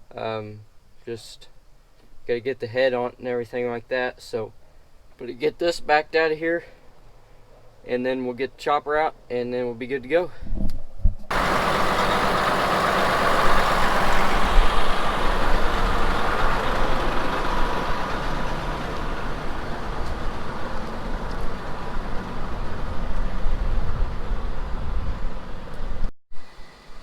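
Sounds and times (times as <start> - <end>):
tractor engine rumbling: 11.3 - 26.0.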